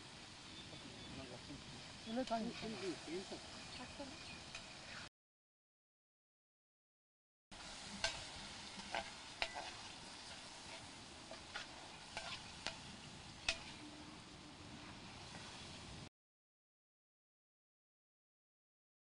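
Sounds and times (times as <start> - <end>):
meat sizzling in a pan: 0.0 - 5.1, 7.5 - 16.1
metal spatula scraping a pan: 7.6 - 13.9.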